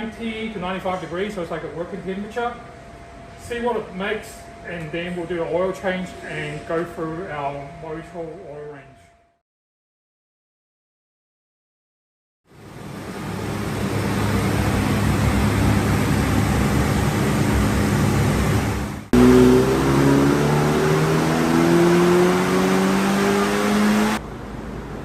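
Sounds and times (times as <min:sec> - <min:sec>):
car engine on chassis dyno: 0:12.5 - 0:25.0
steady whir: 0:12.7 - 0:24.2.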